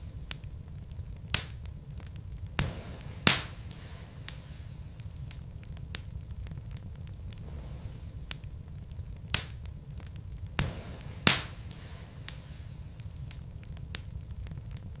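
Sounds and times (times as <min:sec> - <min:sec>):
logs crackling in fireplace: 0:00.0 - 0:15.0
low steady rumble: 0:00.0 - 0:15.0
sharp pops of fire: 0:00.0 - 0:15.0.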